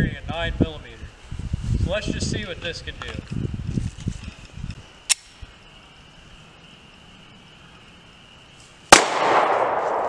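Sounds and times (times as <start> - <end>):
sharp click: 5.1 - 5.4
gunshot with rolling echo: 8.9 - 10.0.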